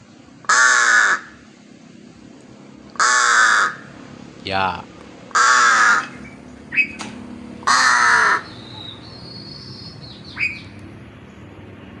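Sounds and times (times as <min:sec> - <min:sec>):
crow cawing: 0:00.5 - 0:01.4, 0:03.0 - 0:04.0, 0:05.3 - 0:06.2, 0:07.6 - 0:08.6.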